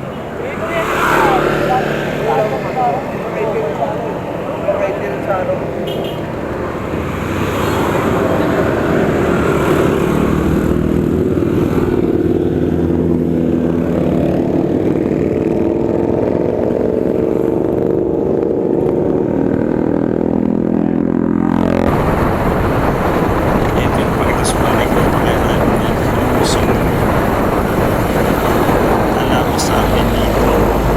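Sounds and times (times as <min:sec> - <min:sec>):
constant rushing noise: 0:00.0 - 0:30.9
vehicle engine running: 0:20.2 - 0:30.9.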